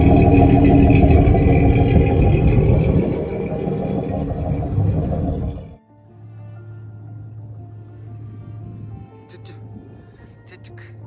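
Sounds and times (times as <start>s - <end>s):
car engine running: 0.0s - 5.8s.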